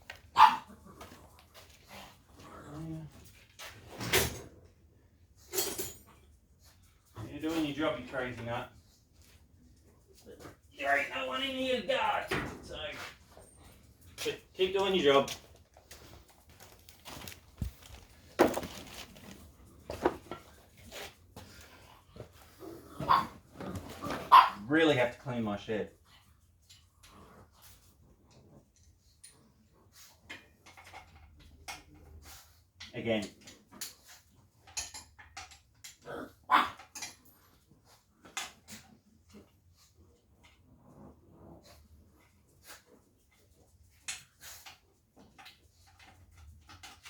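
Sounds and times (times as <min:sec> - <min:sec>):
metal tools clinking: 0:05.5 - 0:06.2.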